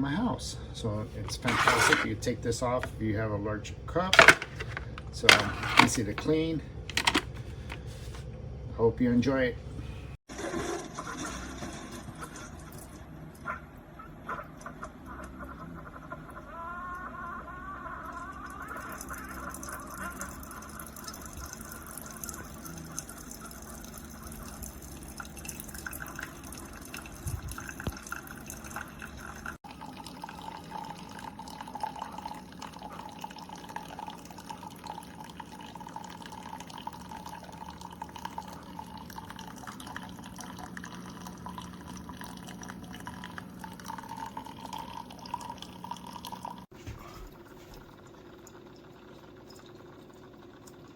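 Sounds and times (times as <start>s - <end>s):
coffee maker pump humming: 0.0s - 50.9s
coffee dripping into a cup: 18.1s - 46.7s, 47.9s - 50.9s.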